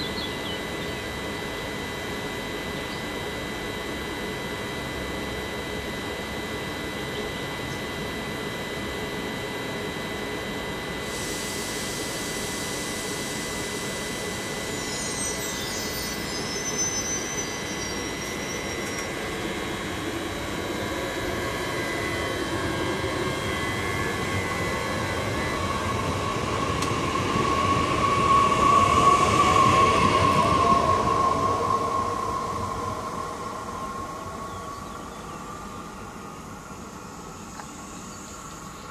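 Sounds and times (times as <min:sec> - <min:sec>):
train running noise: 0:00.0 - 0:37.4
electrical motor whine: 0:00.0 - 0:38.9
brief high squeal: 0:14.7 - 0:19.1.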